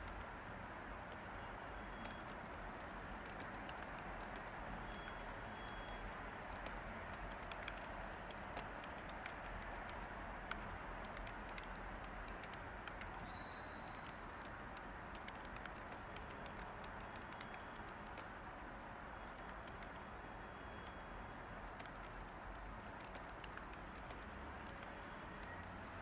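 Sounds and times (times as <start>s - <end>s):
white-noise hiss: 0.0s - 26.0s
keyboard key clicks: 1.9s - 5.2s, 6.5s - 18.3s, 19.2s - 20.0s, 21.7s - 25.6s.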